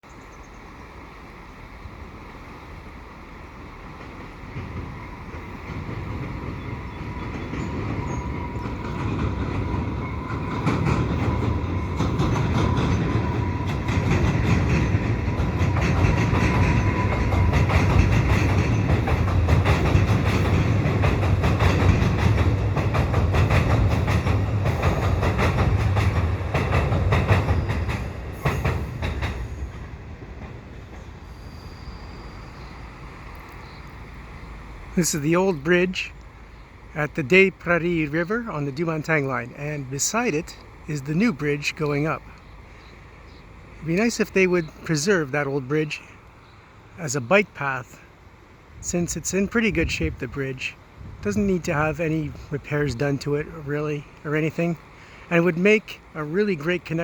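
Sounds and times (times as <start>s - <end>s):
train rattling over bridge: 0.0s - 57.0s
wheels clacking over rail joints: 2.6s - 31.4s.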